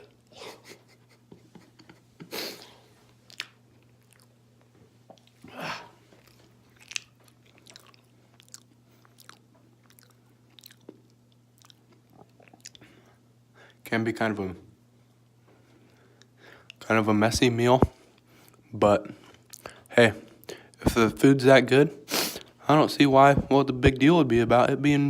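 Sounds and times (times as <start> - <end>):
steady low hum: 0.0 - 25.0
person chewing and swallowing: 2.6 - 13.1, 19.2 - 19.8.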